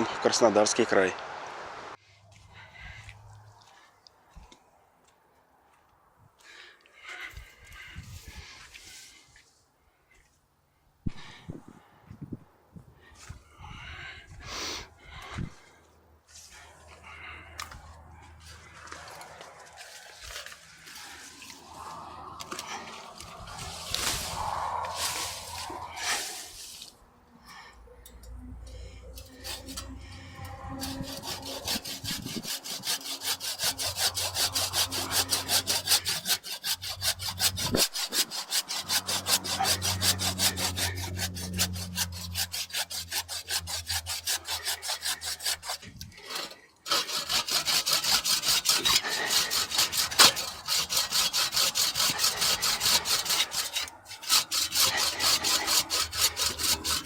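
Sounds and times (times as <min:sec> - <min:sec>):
hand saw cutting a branch: 0:18.4 - 0:27.6, 0:29.1 - 0:57.0.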